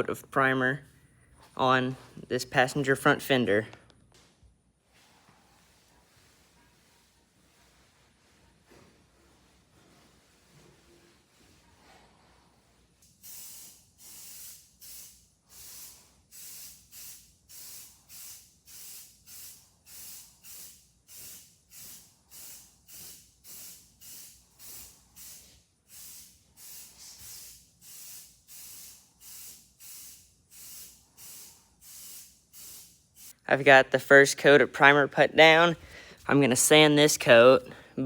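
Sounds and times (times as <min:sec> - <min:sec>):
spray paint hissing bursts: 0:13.0 - 0:33.4.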